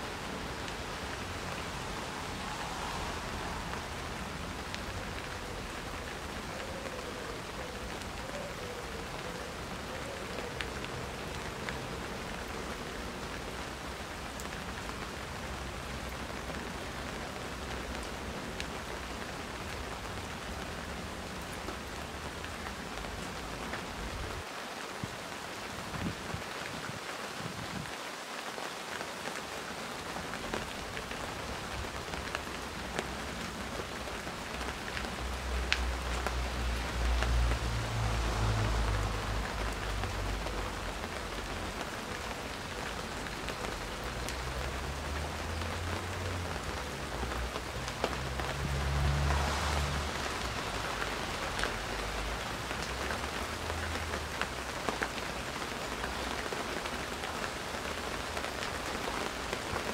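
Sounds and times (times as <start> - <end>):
steady rain falling: 0.0 - 59.9
raindrops ticking: 30.2 - 59.9.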